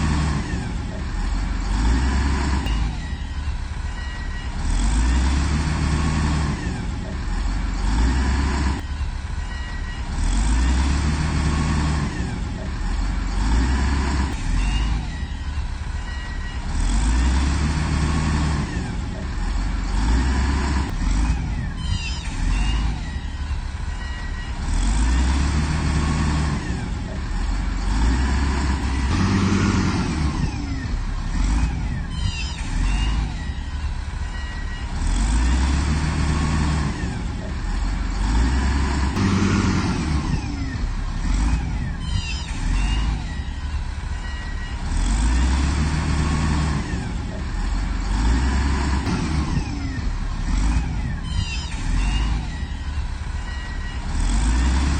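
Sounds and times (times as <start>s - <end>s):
heavy diesel machine engine: 0.0s - 54.9s
high metallic squeaks: 21.7s - 24.7s, 31.9s - 35.6s, 41.9s - 44.9s, 51.2s - 54.7s.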